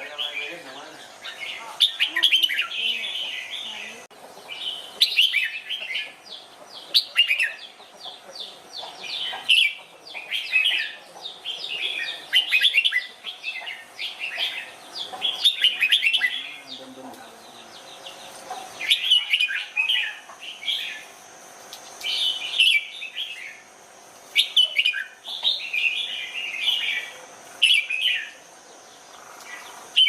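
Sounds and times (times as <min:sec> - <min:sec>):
bird singing bright chirps: 0:00.0 - 0:21.1.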